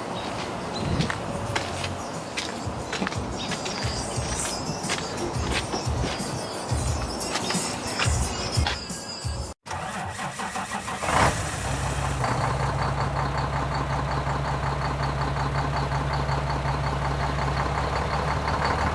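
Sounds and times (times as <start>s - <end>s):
diesel engine cranking and idling: 9.6s - 18.9s.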